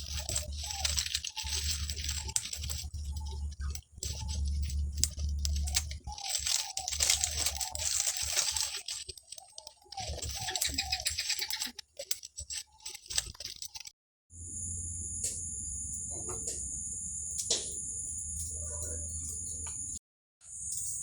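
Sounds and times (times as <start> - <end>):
crisp clicks and crackles: 0.0 - 13.9.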